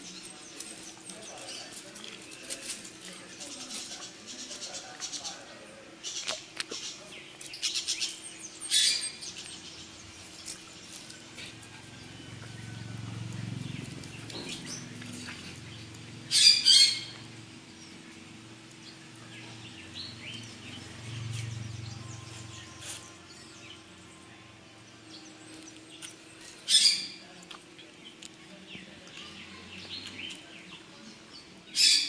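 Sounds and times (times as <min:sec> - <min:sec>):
bird chirping and calling: 0:07.5 - 0:09.9, 0:13.8 - 0:17.3, 0:31.7 - 0:32.0.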